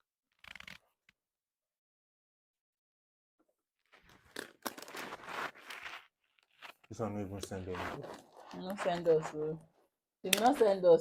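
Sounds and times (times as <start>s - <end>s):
gift packaging crackling and rustling: 3.9s - 9.3s.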